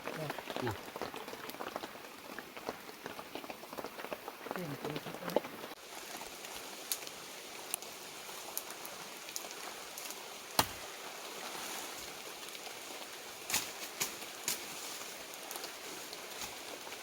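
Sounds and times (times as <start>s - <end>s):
steady rain in forest: 0.0s - 17.0s.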